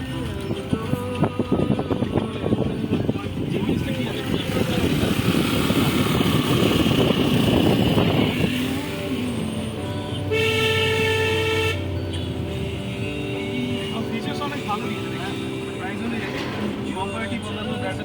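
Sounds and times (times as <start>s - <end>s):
car road and engine noise: 0.0s - 18.0s
vehicle horn: 10.2s - 14.4s.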